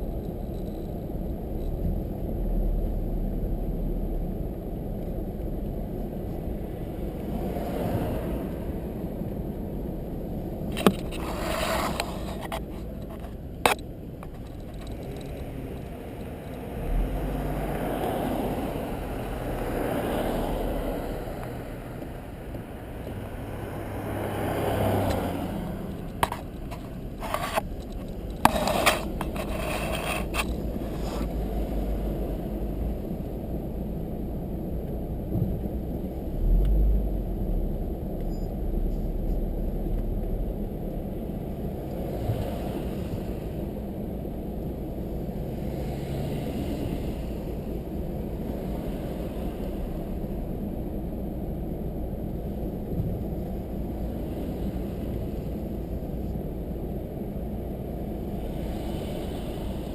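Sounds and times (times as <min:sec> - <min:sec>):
car road and engine noise: 0:00.0 - 0:59.9
heavy low rumble: 0:00.0 - 0:59.9.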